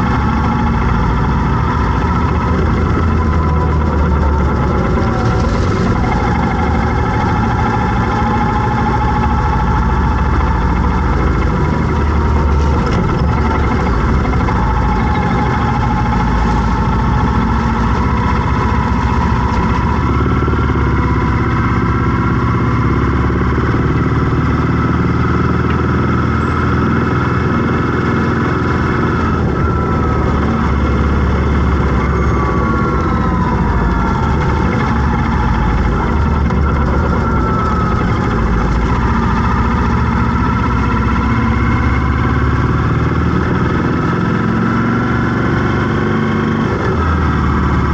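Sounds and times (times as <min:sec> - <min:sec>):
high sliding whine: 0:00.0 - 0:24.8, 0:25.4 - 0:47.9
vehicle engine running steadily: 0:00.0 - 0:47.9.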